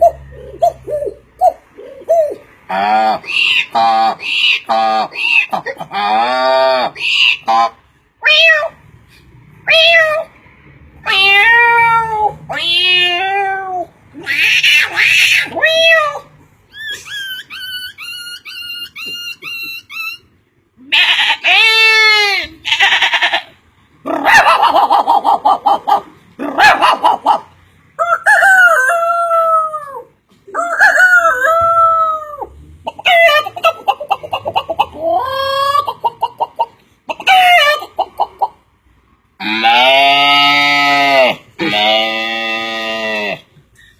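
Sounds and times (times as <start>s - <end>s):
man imitating animal cries: 0.0s - 8.8s, 11.0s - 17.2s, 20.8s - 27.4s, 28.0s - 36.4s, 37.1s - 38.0s, 39.4s - 43.5s.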